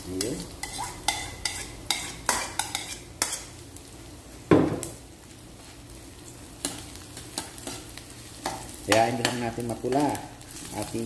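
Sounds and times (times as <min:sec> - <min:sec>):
garlic and onion sizzling in oil: 0:00.0 - 0:11.0
metal spatula scraping a wok: 0:00.6 - 0:03.5
loud knock: 0:04.5 - 0:04.8.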